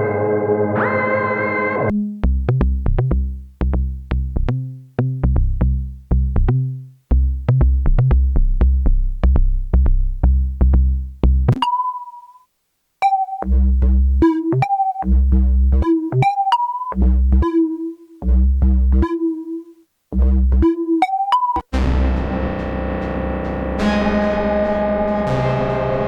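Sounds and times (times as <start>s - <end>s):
buzzy synthesizer note: 0.0s - 1.9s, 21.7s - 26.0s
plucked synth bass notes: 1.9s - 11.6s, 13.4s - 16.3s, 17.0s - 17.6s, 18.2s - 19.2s, 20.1s - 20.9s, 21.6s - 26.0s.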